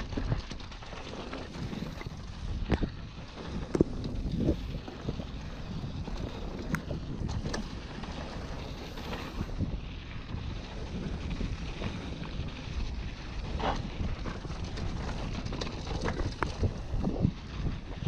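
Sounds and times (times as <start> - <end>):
bike knocks and rattles: 0.0 - 9.5, 10.3 - 18.0
wind buffeting microphone: 0.0 - 18.0.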